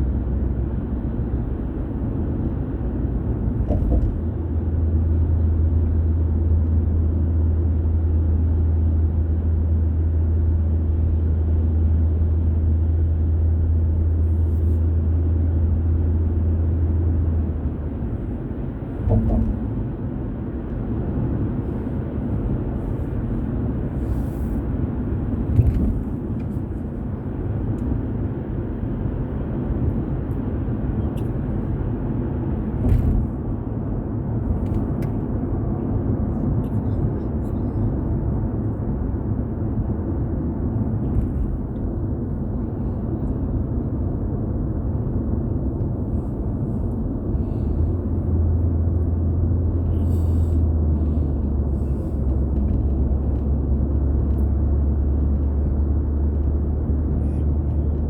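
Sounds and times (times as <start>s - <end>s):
road and tyre noise: 0.0s - 58.0s
short bumps: 3.4s - 4.4s, 18.8s - 19.9s.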